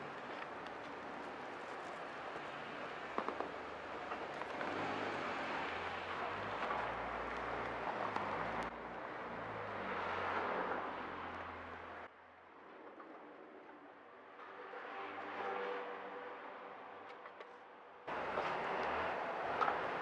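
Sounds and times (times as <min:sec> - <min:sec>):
distant traffic: 0:00.0 - 0:12.1, 0:18.1 - 0:20.0.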